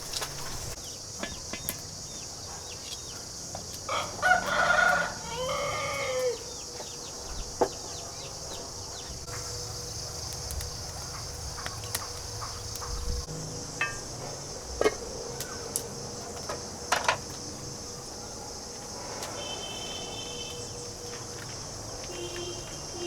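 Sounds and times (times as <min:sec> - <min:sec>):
insects droning: 0:00.0 - 0:23.0
rooster crowing: 0:03.9 - 0:06.8.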